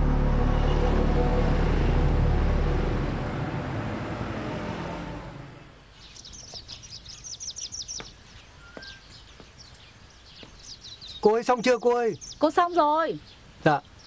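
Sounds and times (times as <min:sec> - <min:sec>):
dramatic background music: 0:00.0 - 0:05.4
birds chirping: 0:05.4 - 0:14.0.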